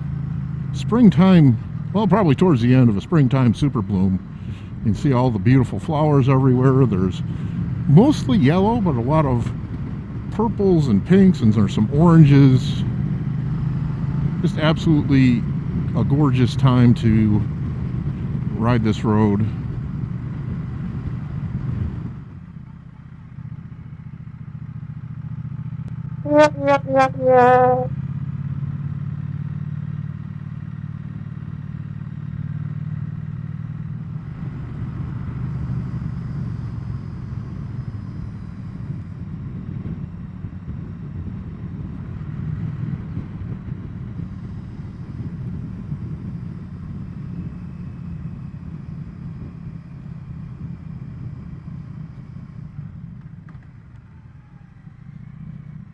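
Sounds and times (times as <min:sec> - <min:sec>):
wind and road noise: 0:00.0 - 0:26.2, 0:28.8 - 0:55.9
short pitched horn toots: 0:26.3 - 0:27.9.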